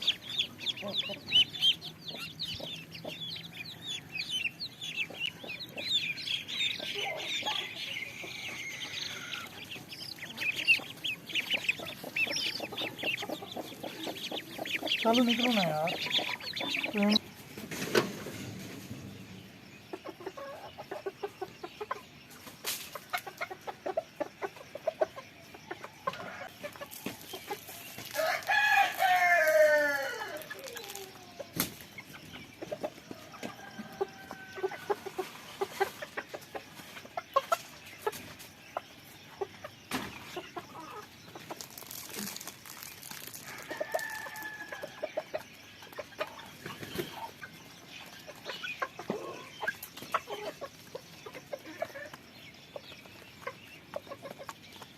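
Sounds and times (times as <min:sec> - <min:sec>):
chickens clucking: 0:00.0 - 0:54.9
rooster crowing: 0:28.1 - 0:30.7, 0:43.4 - 0:45.0.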